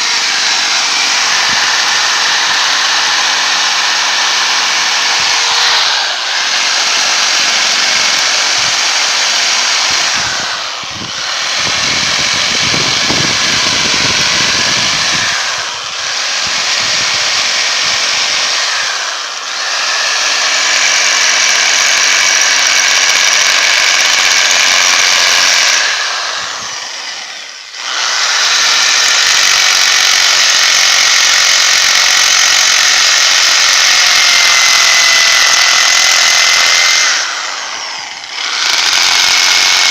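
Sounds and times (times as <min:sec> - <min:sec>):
electric drill running: 0:00.0 - 0:39.9.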